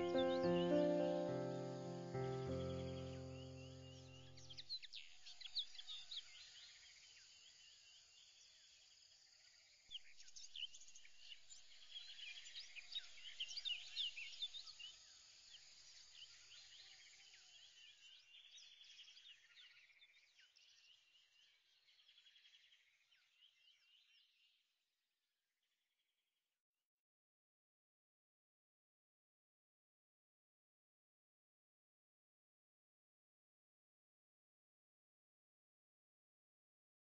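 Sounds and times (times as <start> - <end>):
insects chirping: 0.0 - 4.2
birds chirping: 0.0 - 5.1.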